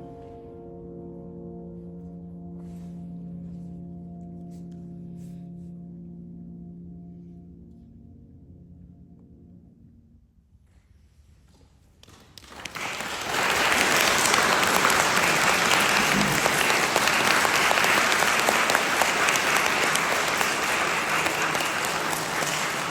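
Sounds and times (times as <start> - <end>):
audience applause: 12.4 - 22.9.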